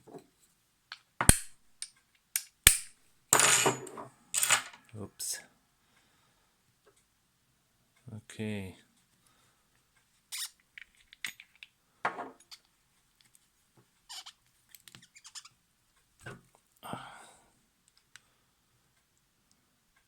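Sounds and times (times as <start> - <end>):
metal parts clicking and knocking: 0.9 - 4.9, 10.8 - 11.7
metal parts scraping: 3.4 - 4.9.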